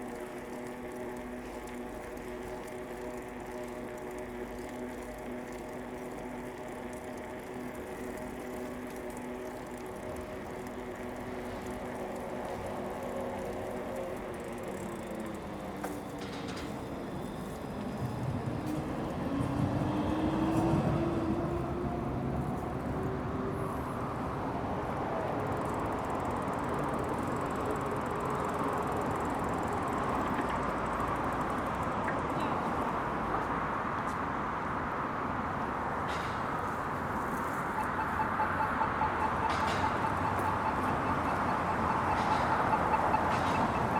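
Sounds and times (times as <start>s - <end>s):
street and bicycle riding noise: 0.0s - 43.9s
motor vehicle whine passing: 11.1s - 25.4s.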